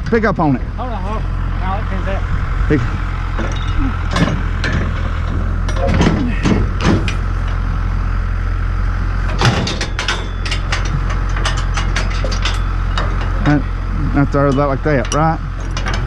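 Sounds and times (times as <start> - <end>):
tractor engine running: 0.0 - 16.0
sharp knocks and rattles: 3.3 - 7.8, 9.2 - 16.0.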